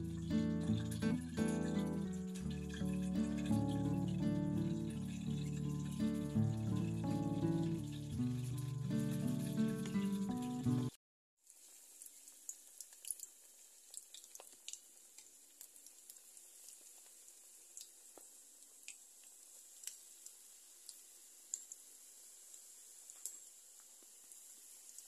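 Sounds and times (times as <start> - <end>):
music: 0.0 - 11.0
food deep-frying in hot oil: 0.0 - 25.0
oil popping and crackling: 0.0 - 25.0.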